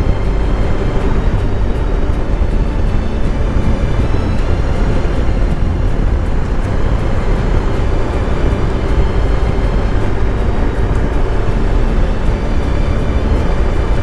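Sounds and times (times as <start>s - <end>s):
motorcycle engine cruising: 0.0s - 14.0s
wind rush over microphone: 0.0s - 14.0s.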